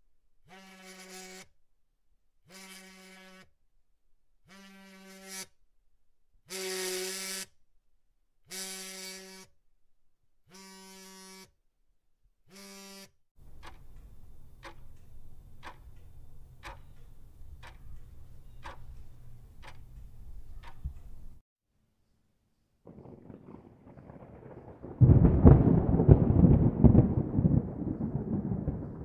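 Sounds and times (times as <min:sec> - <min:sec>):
mobile phone vibrating: 0:10.5 - 0:11.5
clock ticking: 0:13.4 - 0:21.2.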